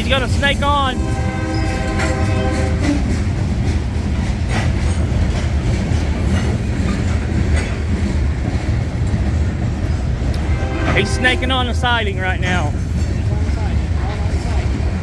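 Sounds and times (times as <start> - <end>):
locomotive rumble: 0.0 - 15.0
wheel clacks on rail joints: 0.0 - 15.0
train horn: 0.8 - 3.2, 10.3 - 12.0.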